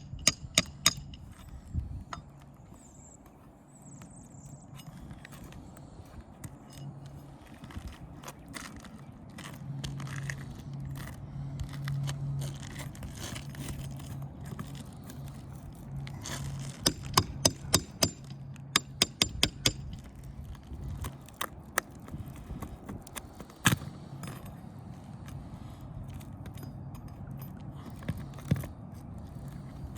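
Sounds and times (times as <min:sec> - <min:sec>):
hand tools tapping metal: 0:00.0 - 0:01.5, 0:16.8 - 0:20.1.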